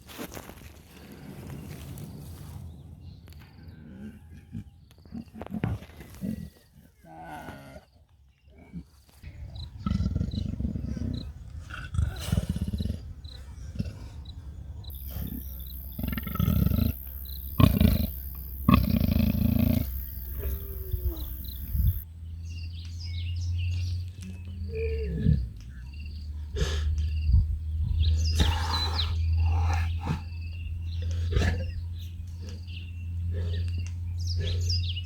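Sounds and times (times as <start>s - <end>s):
leopard calling: 14.8s - 22.0s, 28.1s - 35.0s.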